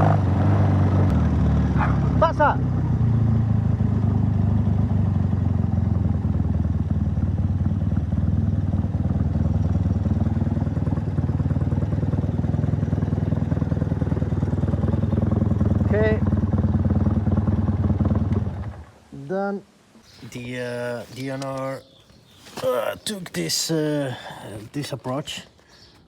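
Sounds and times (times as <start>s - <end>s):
motorcycle engine idling: 1.1s - 19.0s.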